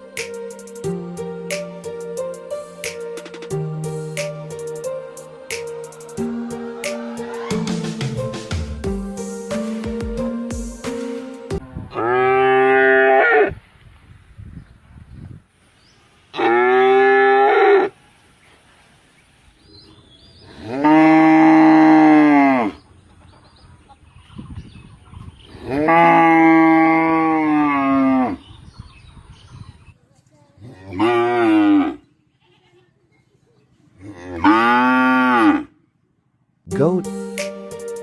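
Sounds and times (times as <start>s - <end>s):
cow mooing: 11.9s - 13.6s, 16.4s - 17.9s, 20.6s - 22.8s, 25.6s - 28.4s, 30.7s - 32.0s, 34.0s - 35.7s.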